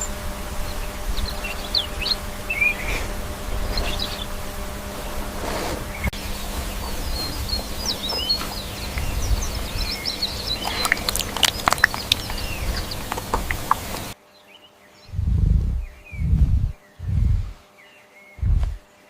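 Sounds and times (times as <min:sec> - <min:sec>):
birds chirping: 0:00.0 - 0:19.0
low rumble: 0:15.1 - 0:17.6, 0:18.4 - 0:18.9.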